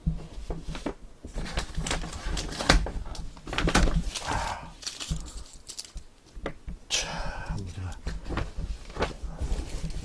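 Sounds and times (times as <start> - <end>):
packaging knocks and thumps: 0.0 - 6.8
packaging crinkling: 1.4 - 6.1.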